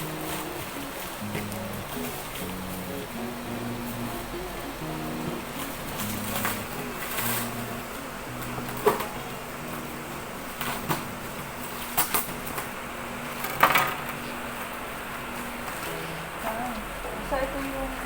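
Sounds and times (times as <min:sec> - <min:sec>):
faint steady low tones: 0:00.0 - 0:11.6, 0:15.8 - 0:18.0.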